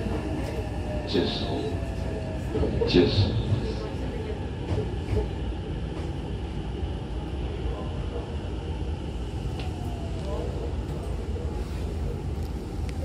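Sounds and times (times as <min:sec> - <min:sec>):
train rumbling inside car: 0:00.0 - 0:13.0.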